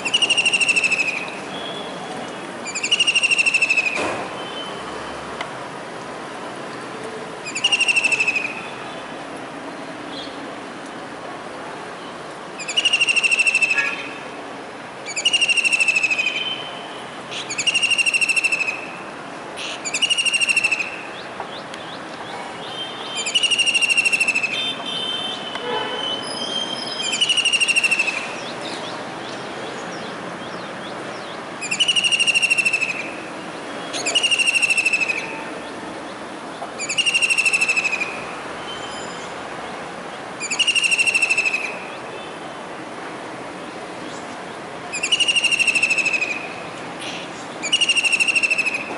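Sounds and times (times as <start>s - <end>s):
kingfisher shrill trill: 23.2s - 24.6s, 40.4s - 41.7s, 45.0s - 46.5s.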